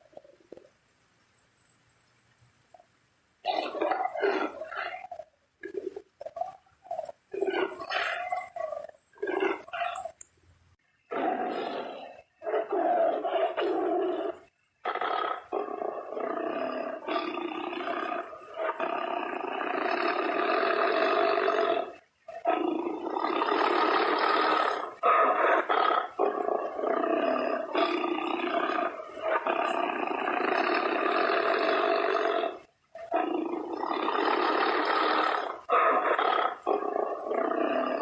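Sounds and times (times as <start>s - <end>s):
tiger roaring: 3.5s - 10.2s, 11.1s - 38.0s.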